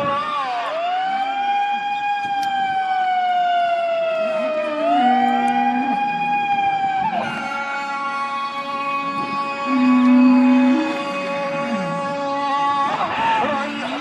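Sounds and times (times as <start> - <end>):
man chanting a long call: 4.3 - 14.0.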